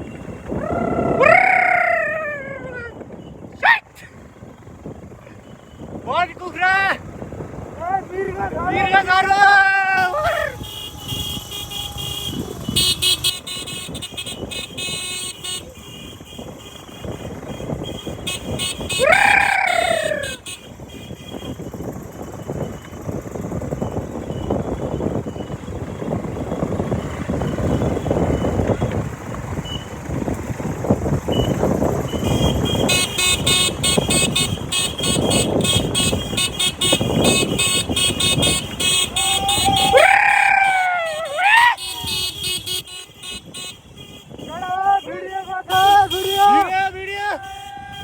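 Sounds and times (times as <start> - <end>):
wind and road noise: 0.0 - 48.0.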